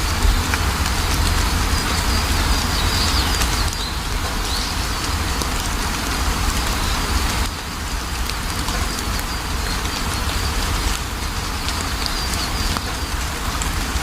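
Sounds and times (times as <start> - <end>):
deep low rumble: 0.0 - 6.6
steady rain pattering: 0.0 - 14.0
bird chirping: 1.0 - 5.1.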